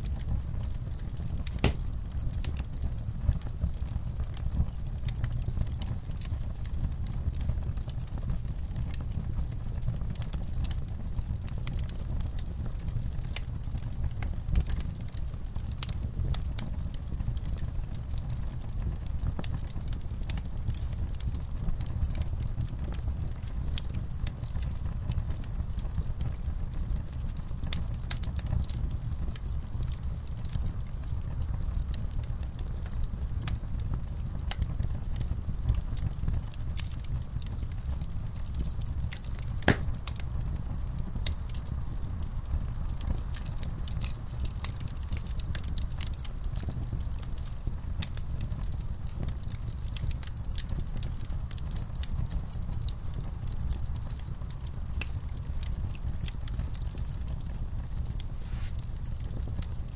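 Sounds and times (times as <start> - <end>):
fire rumbling: 0.0 - 59.9
wood popping and snapping: 1.5 - 1.9, 39.3 - 40.2.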